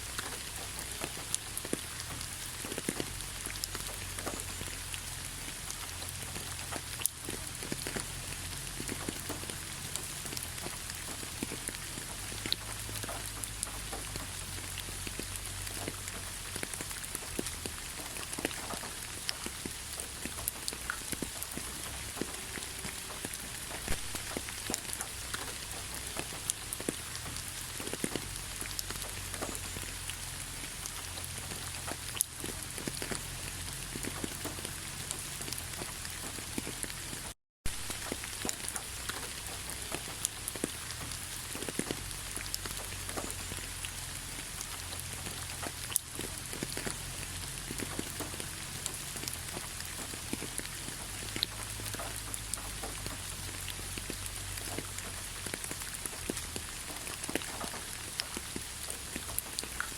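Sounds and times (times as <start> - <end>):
raindrops tapping: 0.0 - 59.9
steady rainfall: 0.0 - 59.9.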